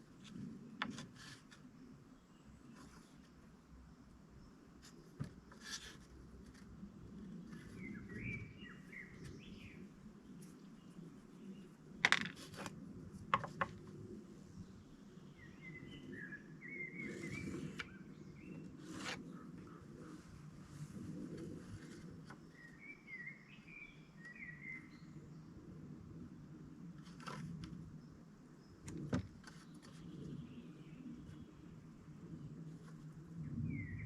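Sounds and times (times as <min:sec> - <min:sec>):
small birds chirping: 0:00.2 - 0:12.7, 0:13.4 - 0:20.3, 0:21.1 - 0:25.4.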